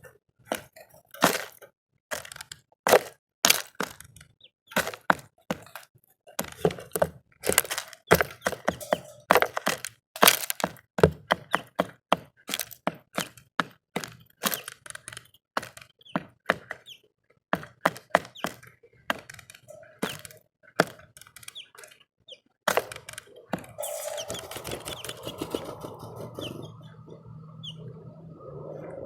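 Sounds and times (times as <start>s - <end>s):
beaks tapping bird feeder: 6.4s - 17.0s, 17.6s - 27.0s.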